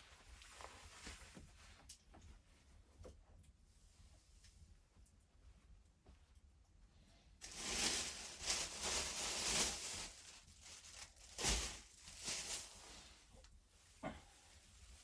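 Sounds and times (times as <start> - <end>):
rustling crinkling handling noise: 7.4 - 13.5.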